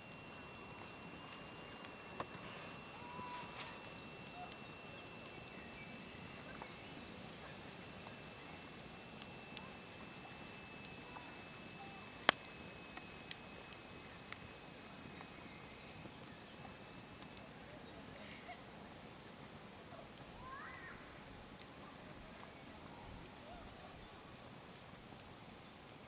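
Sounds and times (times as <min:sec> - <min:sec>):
thin high tone: 0:00.0 - 0:16.1
campfire crackling and popping: 0:00.0 - 0:26.0
faint steady hiss: 0:00.0 - 0:26.0.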